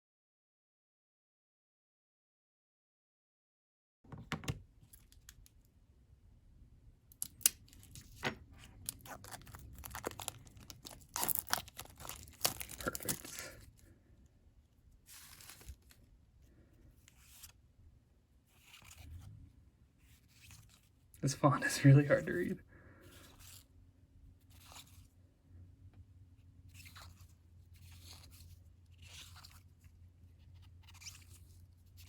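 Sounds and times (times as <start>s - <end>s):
wrapper tearing and crinkling: 7.2s - 13.8s, 15.1s - 16.0s.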